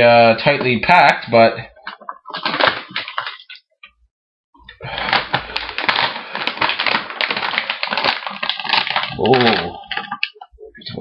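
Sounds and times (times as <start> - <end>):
plastic chip bags crinkling: 1.8 - 3.6, 4.6 - 10.5.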